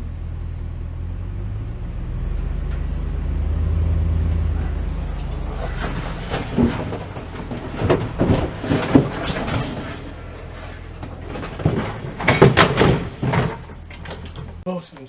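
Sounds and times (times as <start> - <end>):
steady low hum: 0.0 - 14.6
knocks and clunks of gear: 4.3 - 14.6.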